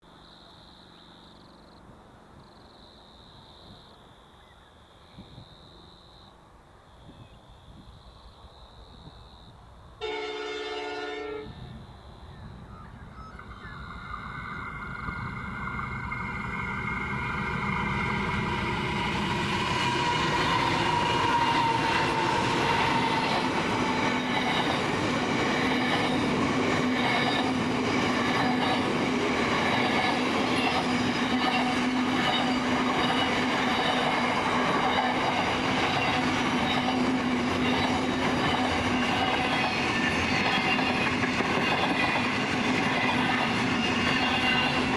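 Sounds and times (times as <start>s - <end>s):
locomotive horn blast: 10.0s - 11.8s
locomotive engine whine: 10.0s - 44.9s
freight train rumble and clatter: 11.5s - 44.9s.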